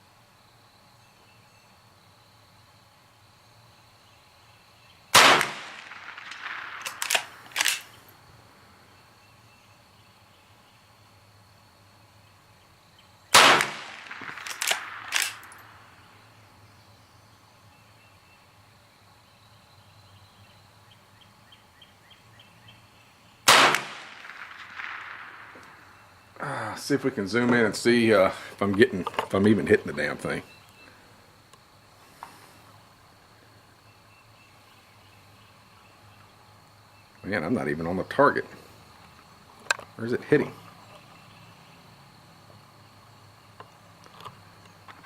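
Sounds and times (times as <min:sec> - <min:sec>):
rifle shots echoing: 0:05.1 - 0:08.0, 0:13.3 - 0:15.9, 0:23.4 - 0:26.0.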